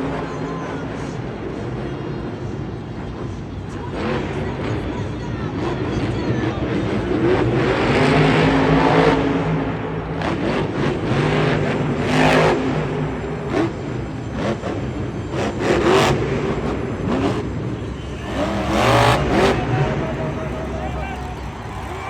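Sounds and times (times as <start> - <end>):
truck engine revving hard: 7.2 - 22.0.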